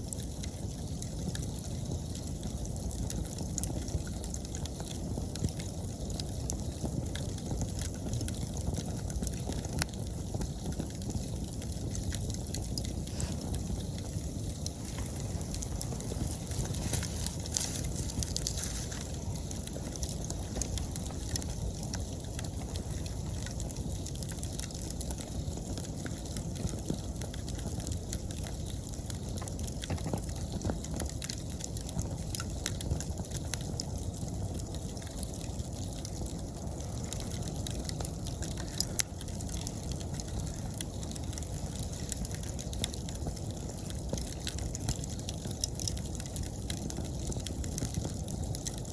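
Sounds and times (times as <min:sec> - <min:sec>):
campfire crackling and popping: 0:00.0 - 0:48.9
insects chirping: 0:10.2 - 0:48.4.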